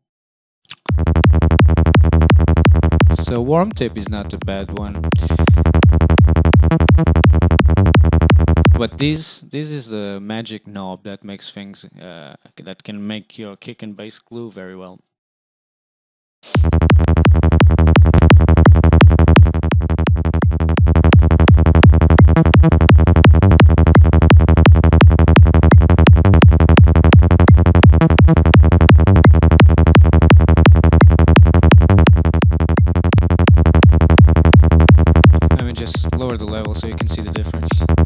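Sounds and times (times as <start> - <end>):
pulsing psytrance bass: 0.8 - 9.0, 16.5 - 38.0
kick drum: 0.9 - 3.2, 5.0 - 8.8, 16.6 - 35.6.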